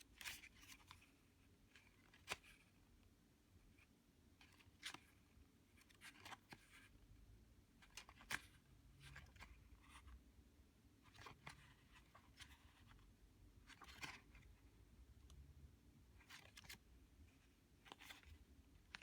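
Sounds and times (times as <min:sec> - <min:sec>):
low steady hum: 0:06.8 - 0:19.0.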